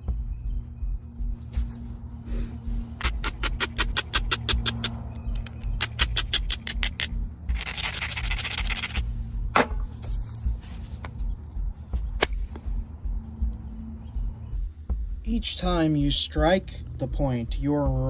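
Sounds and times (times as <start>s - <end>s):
scraping stone edge: 3.0s - 9.0s.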